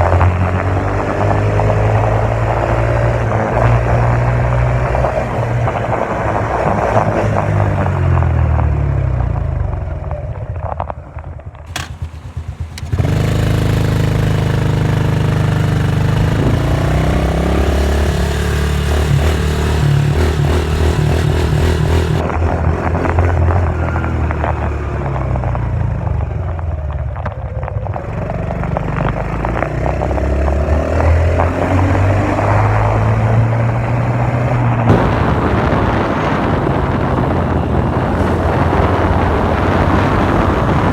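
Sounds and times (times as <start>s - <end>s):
dirt bike engine revving: 11.7s - 24.6s, 34.9s - 40.9s.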